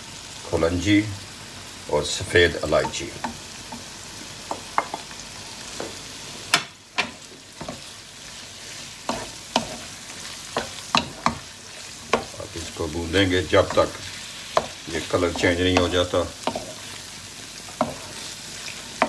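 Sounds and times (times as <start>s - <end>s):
chicken sizzling in a pan: 0.0s - 19.0s
spatula scraping a pan: 5.7s - 12.8s, 13.4s - 19.0s.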